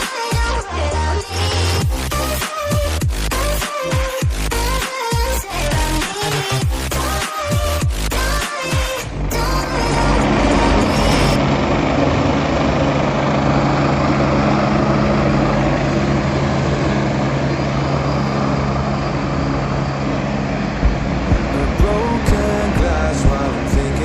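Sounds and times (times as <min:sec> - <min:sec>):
thick rushing noise: 0:18.9 - 0:24.0
motorcycle engine running: 0:20.8 - 0:24.0.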